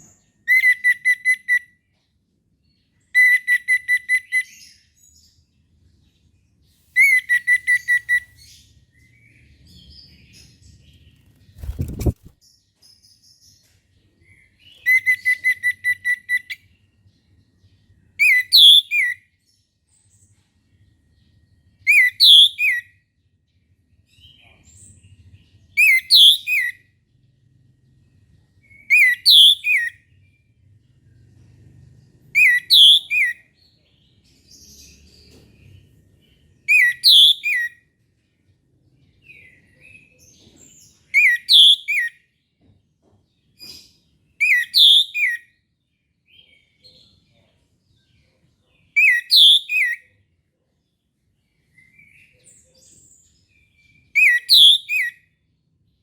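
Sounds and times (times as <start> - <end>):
thrush singing whistled phrases: 54.2 - 55.2.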